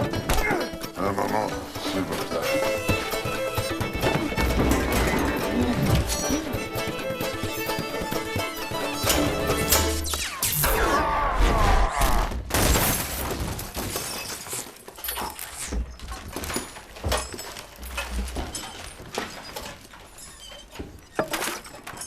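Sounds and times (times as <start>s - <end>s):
clattering debris: 1.7s - 10.1s, 12.4s - 22.0s
crashing impacts: 11.4s - 20.2s.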